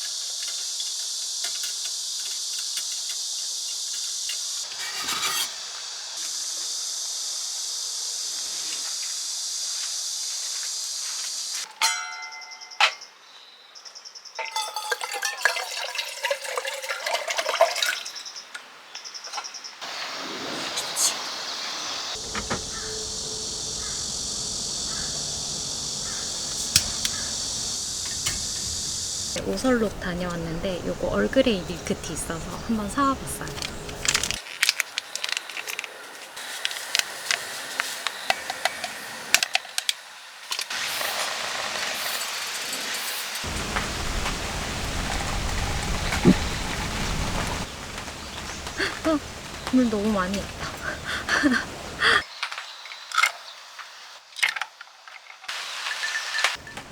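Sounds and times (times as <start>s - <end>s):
steady hiss: 0.0s - 11.7s, 19.8s - 52.8s, 55.5s - 56.9s
insects chirping: 0.0s - 56.9s
water pouring into container: 14.5s - 18.2s
tea packet and cup clicking: 33.4s - 36.0s.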